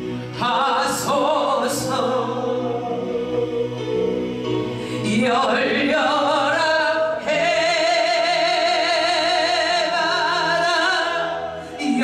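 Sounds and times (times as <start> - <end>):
musical accompaniment: 0.0 - 12.0
person singing worship song: 0.1 - 12.0.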